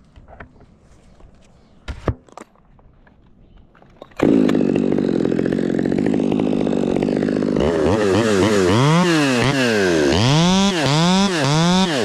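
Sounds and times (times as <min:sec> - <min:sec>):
chainsaw at full throttle: 0:04.2 - 0:12.0.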